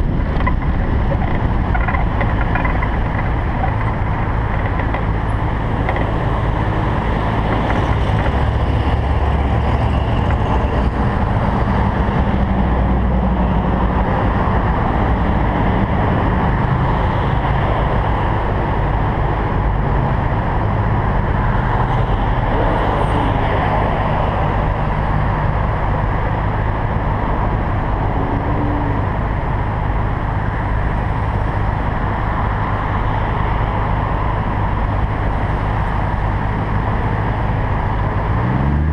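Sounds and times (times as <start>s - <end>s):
car engine droning: 0.0s - 38.9s
constant rushing noise: 0.0s - 38.9s.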